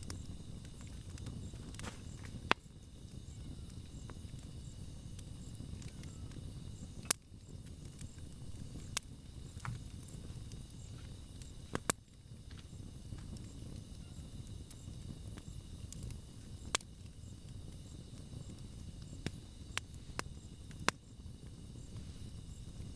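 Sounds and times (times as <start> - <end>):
burning wood crackling pops: 0.0 - 22.9
campfire low rumble: 0.0 - 22.9.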